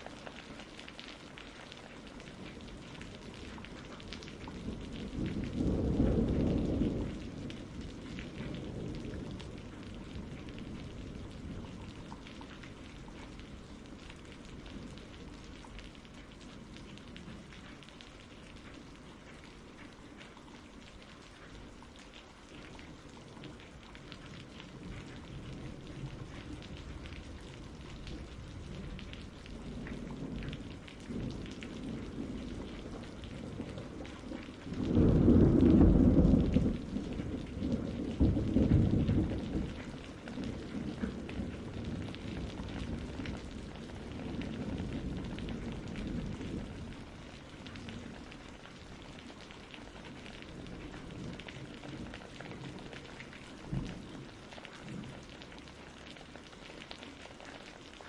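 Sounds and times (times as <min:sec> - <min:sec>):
steady rain: 0:00.0 - 0:58.0
rolling thunder: 0:02.3 - 0:15.5, 0:24.2 - 0:55.2.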